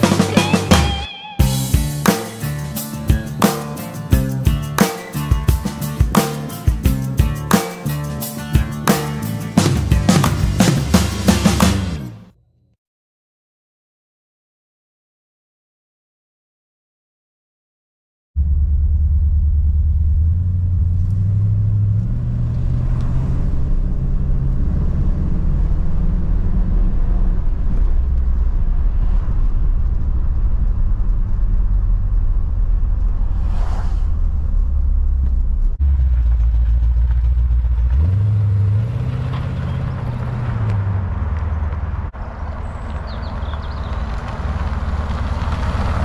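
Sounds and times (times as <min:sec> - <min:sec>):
car engine drone: 0:00.0 - 0:12.8, 0:18.4 - 0:46.0.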